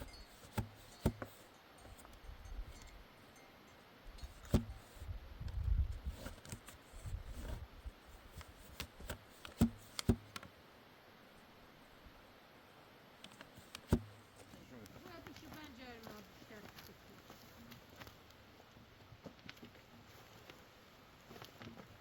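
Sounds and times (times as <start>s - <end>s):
rustling handling sounds: 13.2s - 18.4s, 19.2s - 22.0s.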